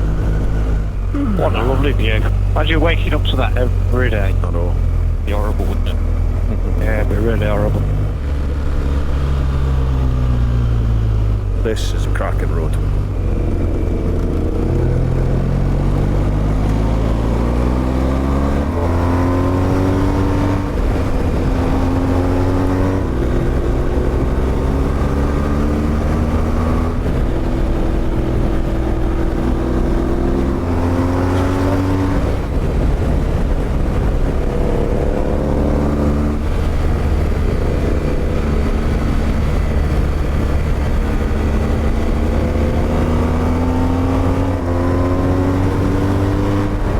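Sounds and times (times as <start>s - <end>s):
wind and road noise: 0.0s - 46.9s
motorcycle engine accelerating: 12.7s - 46.9s.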